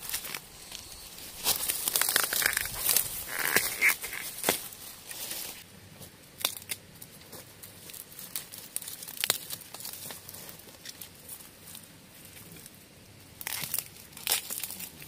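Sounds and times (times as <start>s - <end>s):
dry leaves rustling: 0.0s - 5.6s, 6.4s - 12.8s
bamboo shoots snapping: 1.4s - 5.5s, 6.4s - 6.8s, 7.9s - 10.2s, 13.4s - 15.0s.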